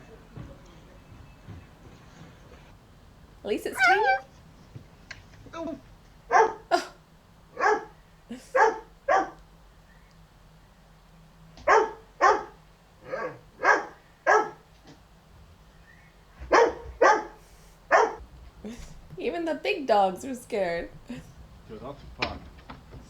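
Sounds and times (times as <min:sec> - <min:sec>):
dog barking: 0:03.8 - 0:04.3, 0:06.3 - 0:06.8, 0:07.5 - 0:09.4, 0:11.6 - 0:14.6, 0:16.4 - 0:18.2.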